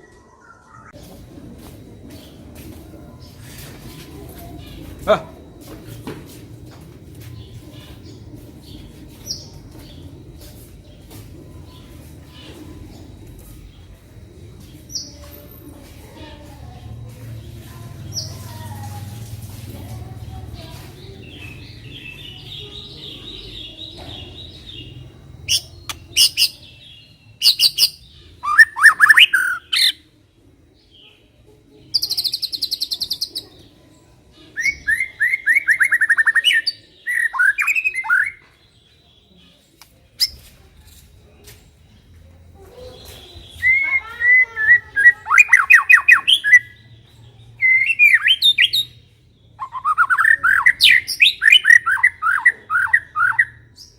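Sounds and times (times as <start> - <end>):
bird singing whistled phrases: 27.4 - 30.0, 34.6 - 38.4, 43.5 - 46.8, 47.6 - 48.9, 49.6 - 53.6.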